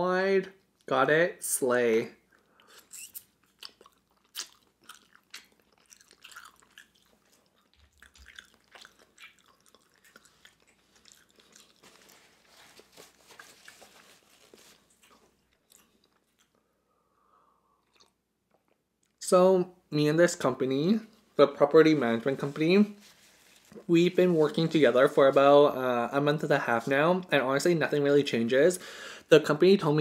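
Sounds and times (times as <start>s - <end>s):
wet chewing clicks and smacks: 2.3s - 12.2s, 14.9s - 16.6s, 17.8s - 19.2s.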